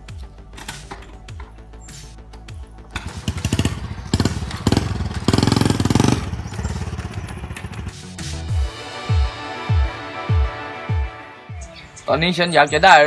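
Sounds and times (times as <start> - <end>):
motorcycle engine revving: 2.9 - 8.7.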